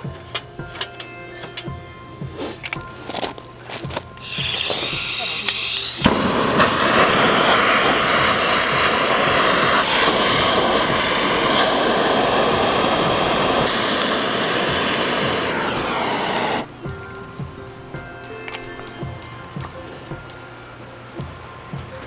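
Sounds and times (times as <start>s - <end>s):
gas torch flame roaring: 4.2s - 17.0s.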